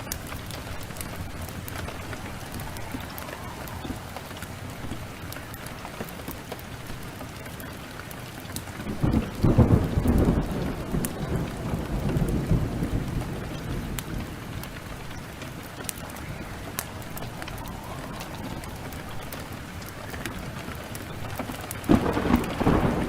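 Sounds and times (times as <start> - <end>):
heavy rain falling: 0.0 - 23.0
thunder rumbling: 0.0 - 23.0
wood fire crackling: 0.0 - 23.0.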